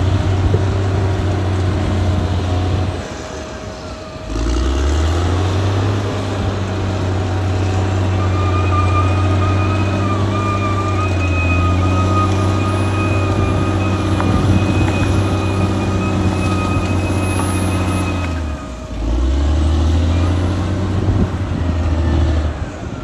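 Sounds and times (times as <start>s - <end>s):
bulldozer diesel engine: 0.0s - 23.0s
high whine: 6.0s - 19.4s.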